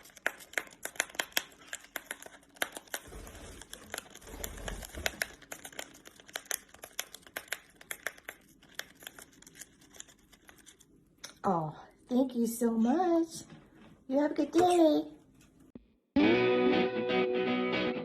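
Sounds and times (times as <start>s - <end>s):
paper wrapping crinkling and tearing: 0.0s - 10.9s.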